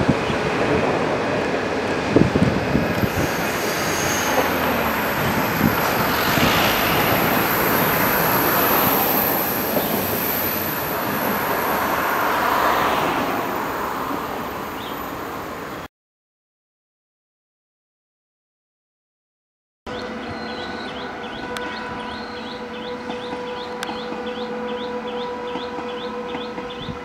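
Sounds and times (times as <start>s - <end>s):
train wheels rushing on rails: 0.0s - 15.8s, 20.1s - 27.0s
high-pitched wheel squeal: 2.9s - 13.0s.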